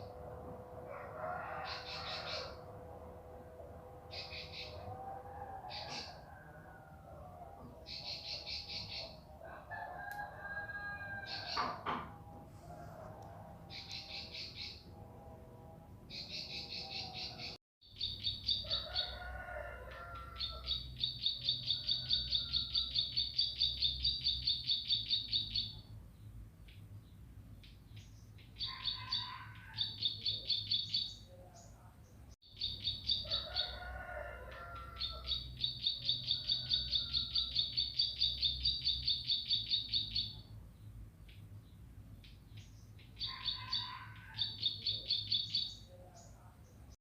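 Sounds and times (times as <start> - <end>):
bird chirping lower phrases: 7.7 - 9.3, 13.6 - 14.9, 16.1 - 19.2, 20.1 - 33.8, 34.8 - 47.0.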